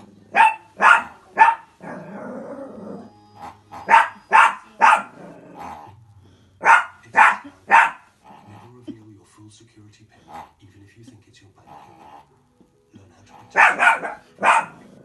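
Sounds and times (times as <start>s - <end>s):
dog growling: 0.0s - 9.0s, 10.2s - 10.6s, 11.6s - 12.5s, 13.2s - 15.0s
dog barking angrily: 0.3s - 2.2s, 3.7s - 5.8s, 6.6s - 8.5s, 13.4s - 15.0s.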